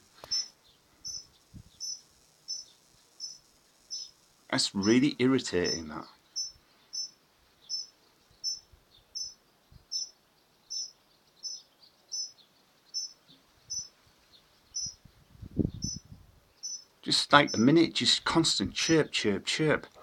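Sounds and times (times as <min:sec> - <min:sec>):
bird chirping: 0:00.0 - 0:18.2.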